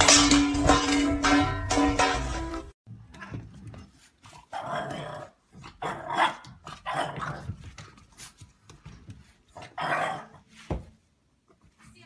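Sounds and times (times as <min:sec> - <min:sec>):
dog barking roughly: 0:05.8 - 0:07.4.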